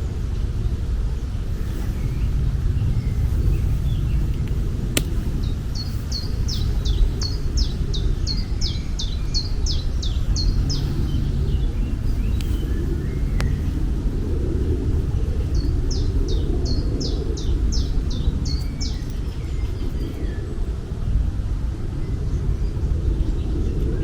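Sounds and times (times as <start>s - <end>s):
low outdoor rumble: 0.0s - 19.4s
sharp click: 4.3s - 5.3s.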